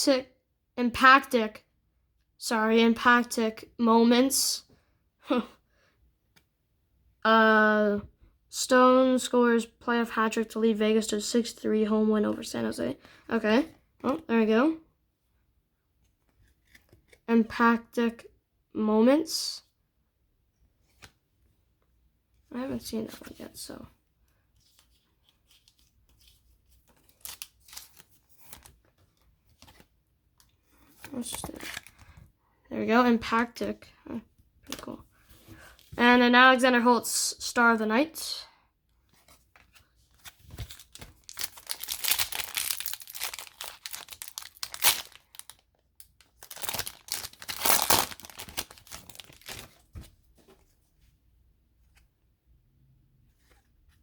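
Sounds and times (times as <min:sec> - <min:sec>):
trading cards rustling: 0:24.6 - 0:29.9, 0:39.1 - 0:50.6.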